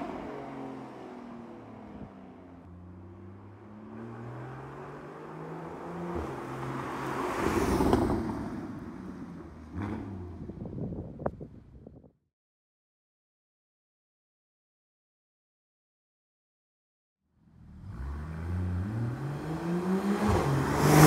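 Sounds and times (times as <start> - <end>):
car engine and exhaust decelerating: 0.0 - 7.1, 17.4 - 21.0.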